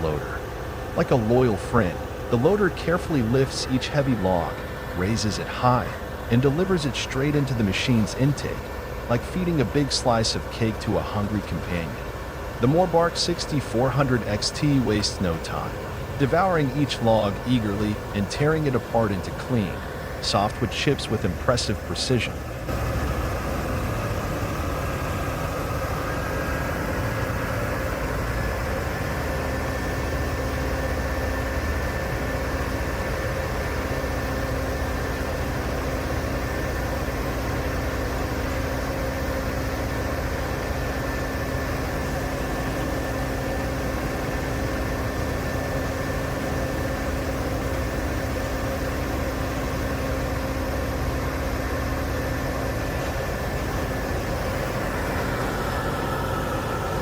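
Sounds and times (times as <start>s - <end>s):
high whine: 0.0s - 36.1s, 41.0s - 57.0s
wood grinder engine drone: 0.0s - 57.0s.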